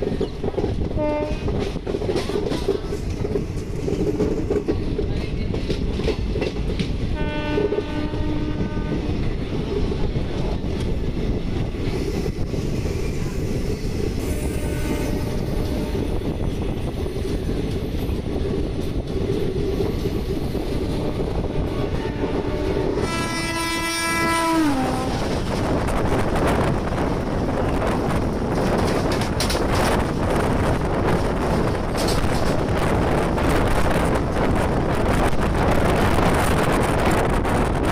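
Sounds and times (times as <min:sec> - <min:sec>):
train wheels clickety-clack on rails: 0:00.0 - 0:37.9
passing train horn: 0:01.0 - 0:01.5, 0:07.1 - 0:09.2, 0:14.2 - 0:16.3, 0:20.8 - 0:25.6
train horn: 0:01.0 - 0:01.5, 0:07.2 - 0:09.2, 0:14.2 - 0:16.2, 0:20.8 - 0:25.4.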